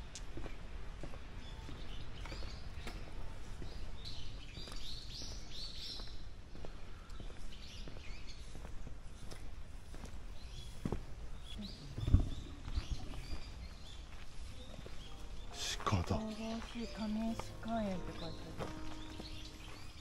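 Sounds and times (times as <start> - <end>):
birds chirping and singing: 10.4 - 20.0.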